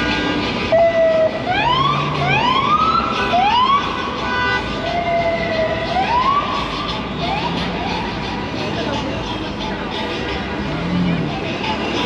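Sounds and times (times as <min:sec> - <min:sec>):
emergency vehicle siren: 0:00.0 - 0:04.2, 0:04.8 - 0:08.0
traffic noise: 0:00.0 - 0:12.0.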